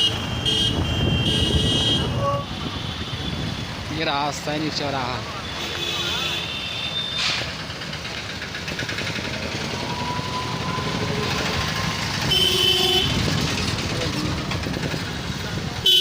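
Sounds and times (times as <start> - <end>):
vehicle horn honking: 0.0 - 3.5, 5.4 - 7.2, 12.3 - 13.2
road traffic rumble: 0.0 - 16.0.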